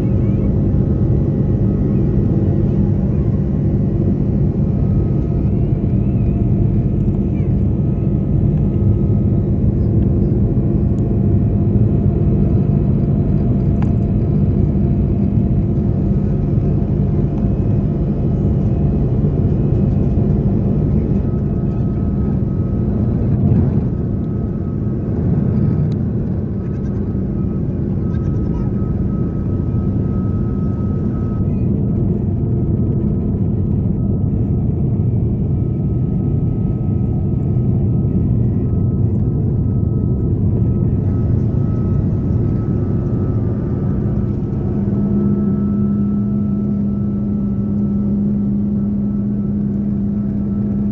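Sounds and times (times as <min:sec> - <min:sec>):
jet engines droning: 0:00.0 - 0:50.9
faint steady tones: 0:11.9 - 0:50.9.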